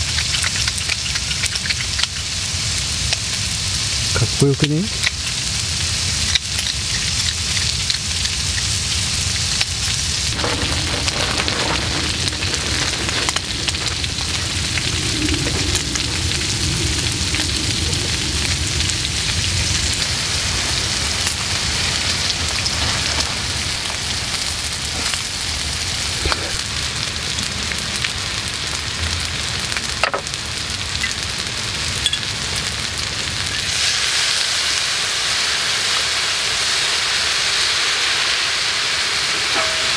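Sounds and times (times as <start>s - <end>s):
food sizzling on a griddle: 0.0s - 39.9s.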